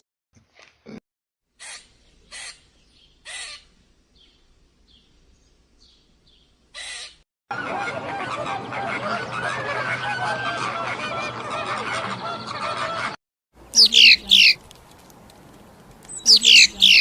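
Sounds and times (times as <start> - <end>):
harsh bird calls: 1.6 - 5.1, 5.8 - 13.1, 13.7 - 14.6, 16.1 - 17.0
chorus of many birds: 5.8 - 14.6, 15.6 - 17.0.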